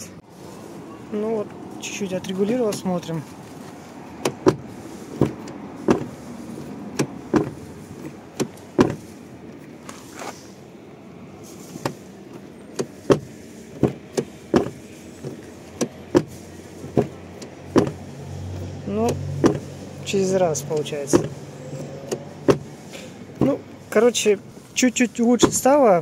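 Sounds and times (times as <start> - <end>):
car door thuds: 2.5 - 9.2, 11.7 - 18.1, 19.0 - 19.8, 20.8 - 21.4, 22.0 - 23.7, 25.3 - 25.8.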